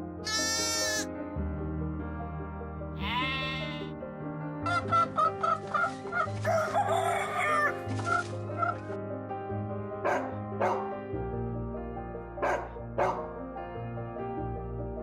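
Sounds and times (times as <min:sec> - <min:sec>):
soft background music: 0:00.0 - 0:15.0
animal calls: 0:00.3 - 0:01.1
rooster crowing: 0:06.4 - 0:07.7.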